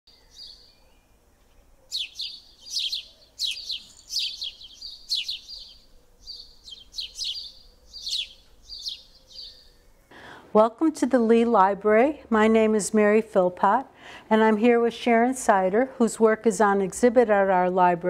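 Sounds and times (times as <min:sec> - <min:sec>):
songbird chirping: 0:00.1 - 0:10.3.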